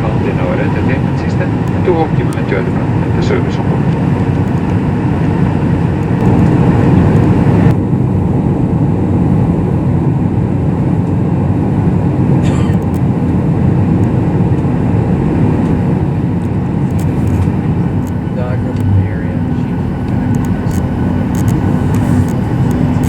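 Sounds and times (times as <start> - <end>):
airliner cabin rumble: 0.0 - 23.0
high cabin hiss: 17.0 - 23.0.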